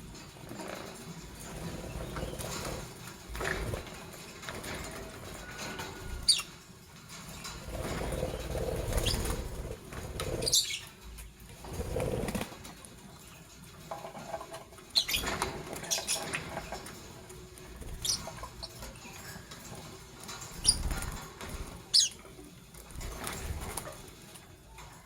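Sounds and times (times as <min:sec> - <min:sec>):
birds fluttering wings: 0:00.0 - 0:25.0.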